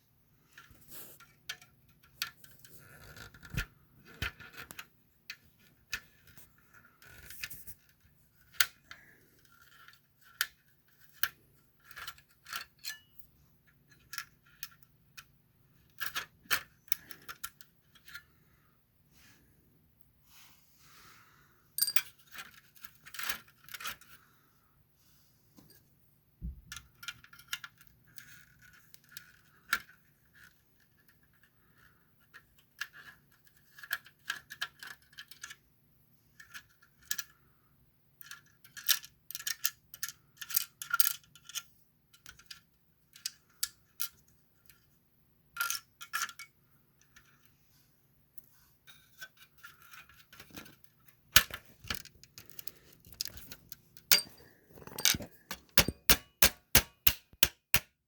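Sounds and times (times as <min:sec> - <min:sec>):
small metal parts clinking: 0:21.8 - 0:24.0, 0:51.4 - 0:57.4.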